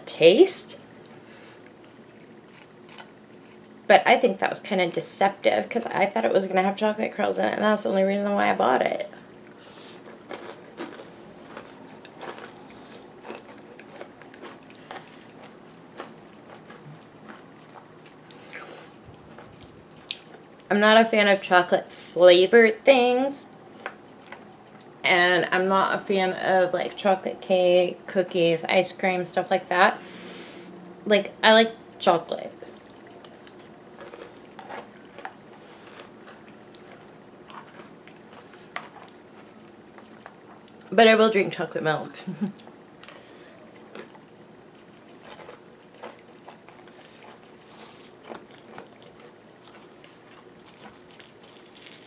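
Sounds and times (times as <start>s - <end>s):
chewing with faint crunches: 1.0s - 3.9s, 9.1s - 20.7s, 23.5s - 25.0s, 32.6s - 40.9s, 42.5s - 52.0s.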